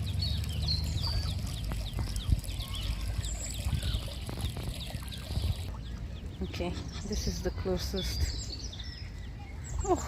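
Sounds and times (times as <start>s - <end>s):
ducklings peeping: 0.0s - 6.0s.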